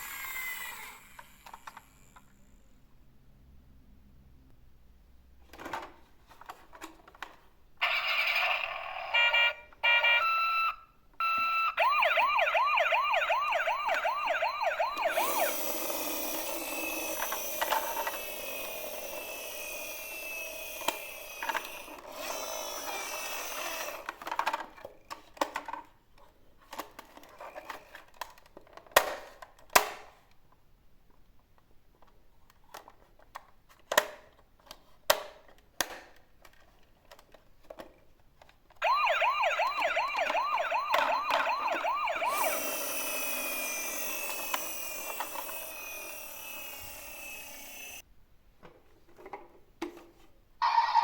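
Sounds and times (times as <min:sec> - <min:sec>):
toy electronic beeping and siren: 0:07.8 - 0:24.0, 0:38.8 - 0:48.0, 0:50.6 - 0:51.0
plastic toy handling clicks: 0:26.7 - 0:30.2, 0:32.0 - 0:38.8.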